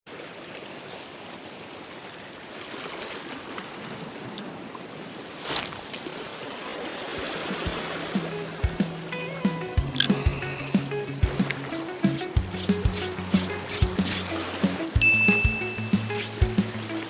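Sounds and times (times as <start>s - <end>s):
sea water lapping at shore: 0.1s - 17.0s
music: 7.6s - 17.0s.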